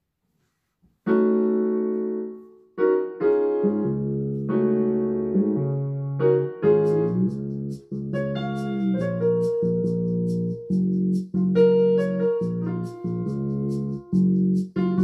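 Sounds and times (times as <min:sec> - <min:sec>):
slow piano chords: 0:01.1 - 0:15.0
low piano bass note: 0:03.6 - 0:15.0.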